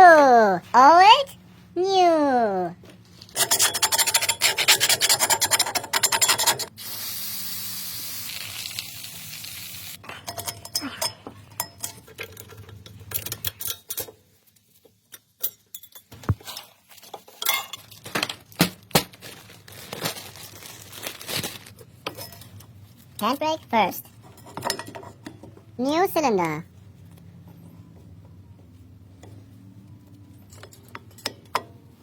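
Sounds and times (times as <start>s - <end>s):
aerosol spray can hissing: 6.8s - 10.0s.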